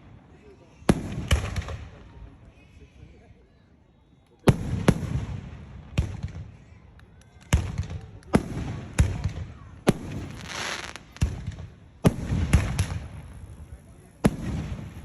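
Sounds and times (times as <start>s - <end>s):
fireworks bangs: 0.8s - 2.2s, 4.4s - 6.7s, 7.4s - 15.0s
fireworks hissing crackle: 7.5s - 15.0s.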